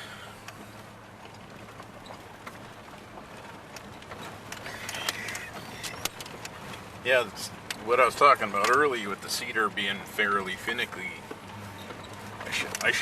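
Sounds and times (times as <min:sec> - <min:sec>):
low engine hum: 0:00.0 - 0:13.0
road noise: 0:00.0 - 0:13.0
small rattles and clicks: 0:00.4 - 0:13.0.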